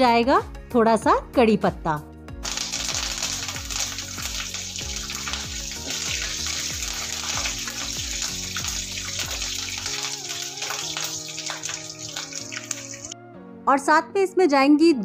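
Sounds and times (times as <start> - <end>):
curry leaves sizzling in hot oil: 2.4 - 13.2.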